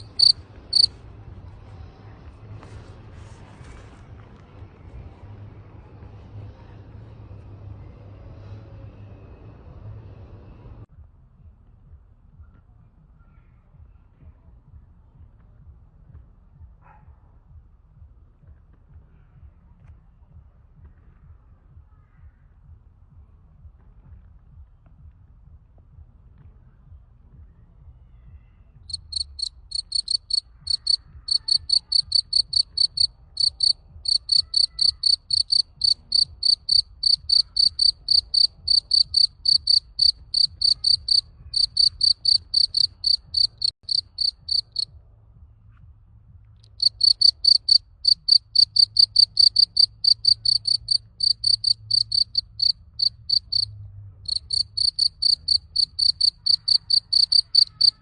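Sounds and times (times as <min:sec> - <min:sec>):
cricket chirping: 0:00.0 - 0:00.9, 0:28.9 - 0:44.8, 0:46.8 - 0:53.7, 0:54.3 - 0:58.0.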